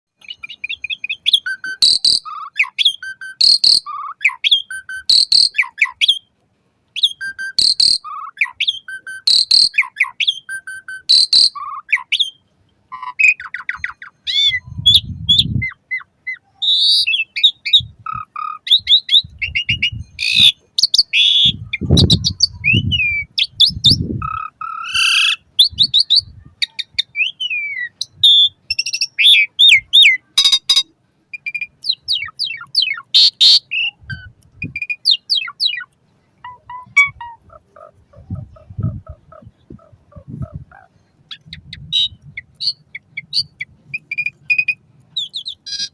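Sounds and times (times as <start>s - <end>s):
starling whistling song: 0.2s - 6.3s, 6.9s - 37.5s, 40.2s - 45.9s
rough low-pitched noises: 36.6s - 42.6s.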